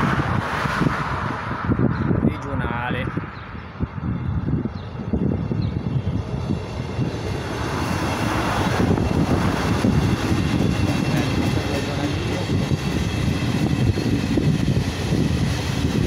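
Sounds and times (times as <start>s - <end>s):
train passing close by: 0.0s - 16.0s.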